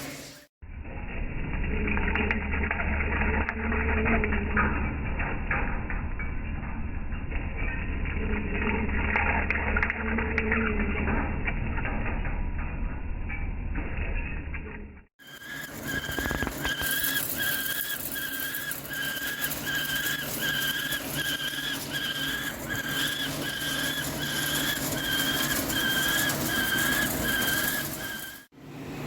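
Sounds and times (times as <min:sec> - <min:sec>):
lathe cutting whine: 0:15.2 - 0:28.5.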